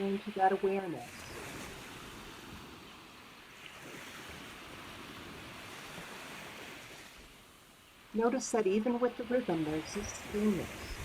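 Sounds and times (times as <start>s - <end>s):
ocean surf washing in: 0.0s - 11.0s.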